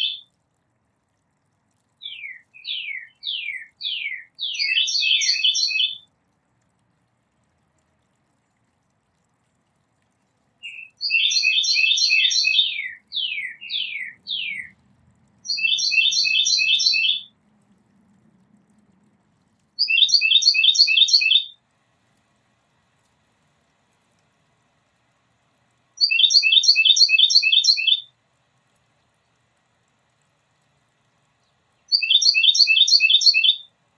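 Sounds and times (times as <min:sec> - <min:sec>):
songbird chirping: 0:00.0 - 0:00.3, 0:02.0 - 0:06.0, 0:10.6 - 0:14.8, 0:15.4 - 0:17.4, 0:19.8 - 0:21.6, 0:26.0 - 0:28.1, 0:31.4 - 0:33.7.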